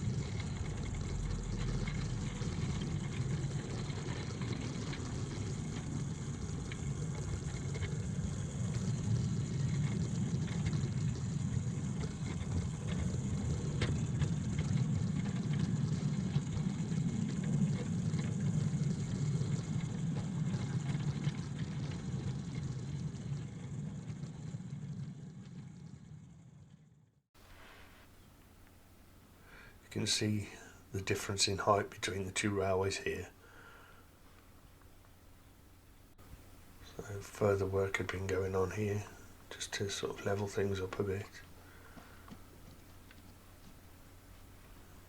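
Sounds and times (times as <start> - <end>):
wheels rumbling on rails: 0.0 - 27.0, 36.1 - 45.0.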